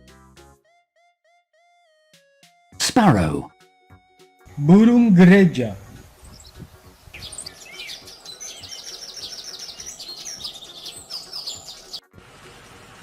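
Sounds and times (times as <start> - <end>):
sparrow chirping: 5.8 - 12.0.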